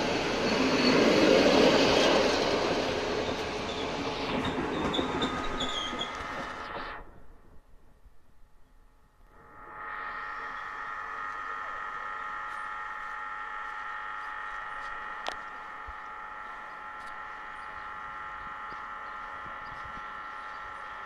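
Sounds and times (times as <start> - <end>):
train high-pitched squeal: 0.0 - 7.0.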